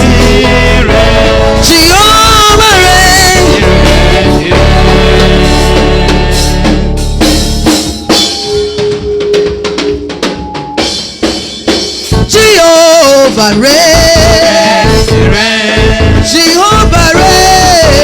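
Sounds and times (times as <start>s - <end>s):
bass guitar: 0.0s - 8.3s, 12.1s - 18.0s
drum kit kick and snare: 0.0s - 18.0s
praise band playing: 0.0s - 18.0s.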